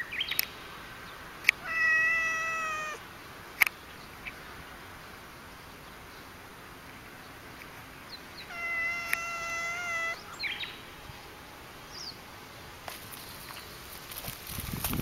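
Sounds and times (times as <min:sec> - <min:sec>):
cat yowling: 0:01.6 - 0:03.0, 0:08.5 - 0:10.4.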